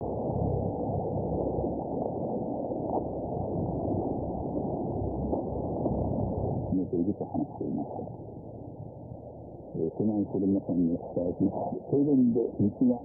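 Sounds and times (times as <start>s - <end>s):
radio static hiss and crackle: 6.6s - 8.2s, 9.7s - 13.0s.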